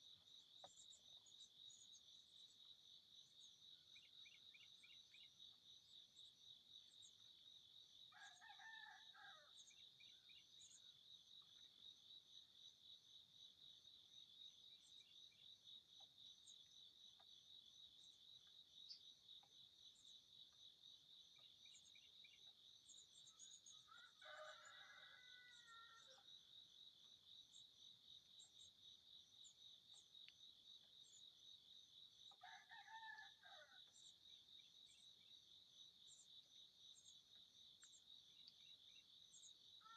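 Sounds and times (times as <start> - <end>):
crickets chirping: 0.0 - 39.9
rooster crowing: 23.9 - 26.2, 32.4 - 33.8.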